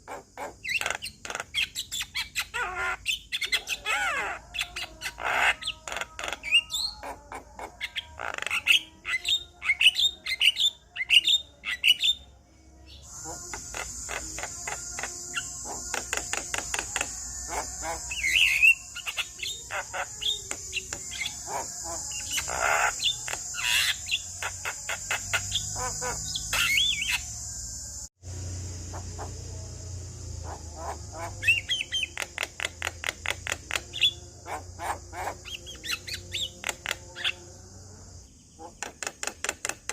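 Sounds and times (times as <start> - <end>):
myna singing chattering chirps: 0.0 - 39.9
steady high hiss: 21.3 - 33.6.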